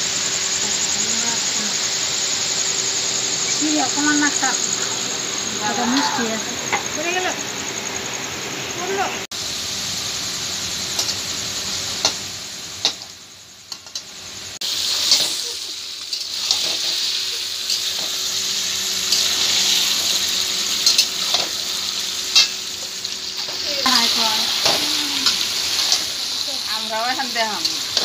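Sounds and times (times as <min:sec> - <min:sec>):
chicken and onions sizzling: 0:00.0 - 0:28.0
spatula scraping a wok: 0:14.6 - 0:28.0.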